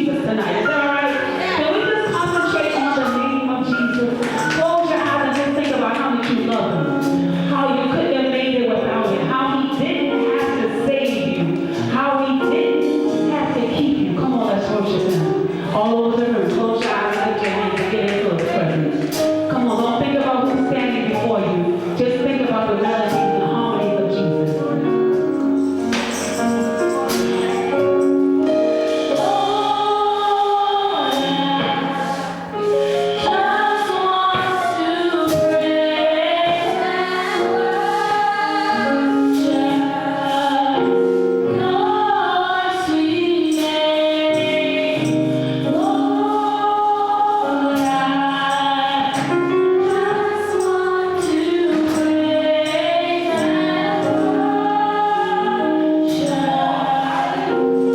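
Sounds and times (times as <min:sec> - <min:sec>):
gospel choir singing: 0:00.0 - 0:06.5, 0:25.8 - 0:57.9
steady percussion beat: 0:25.7 - 0:28.4.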